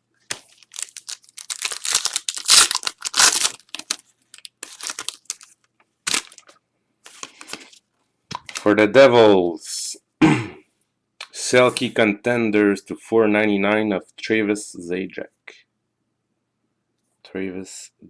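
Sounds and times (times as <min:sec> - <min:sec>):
wrapper crinkling and tearing: 0:00.3 - 0:07.8.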